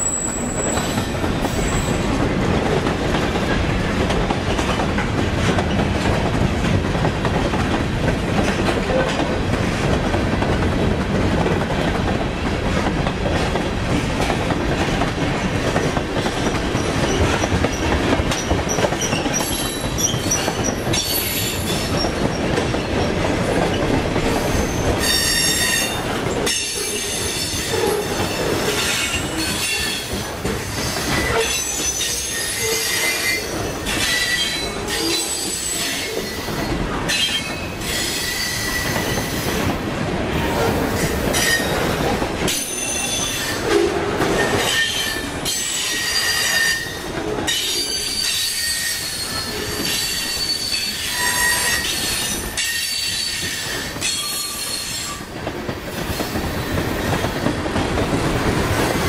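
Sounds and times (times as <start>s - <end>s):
freight cars rolling on rails: 0.0s - 59.0s.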